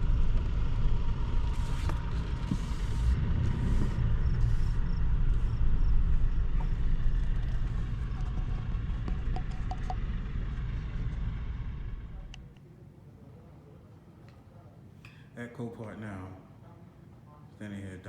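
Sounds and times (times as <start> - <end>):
low vehicle rumble: 0.0 - 12.6.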